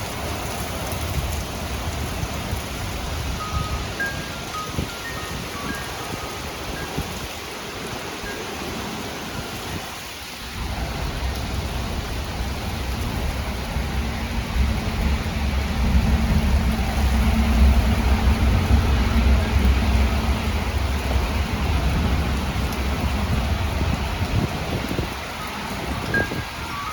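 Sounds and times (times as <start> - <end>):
heavy rain: 0.0 - 26.9
low thunder rumble: 10.5 - 26.9.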